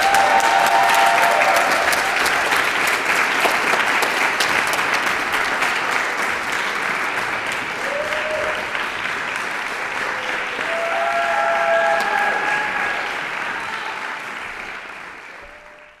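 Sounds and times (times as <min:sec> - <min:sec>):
audience cheering: 0:00.0 - 0:03.3, 0:07.7 - 0:09.0, 0:10.0 - 0:16.0
audience applauding: 0:00.0 - 0:16.0.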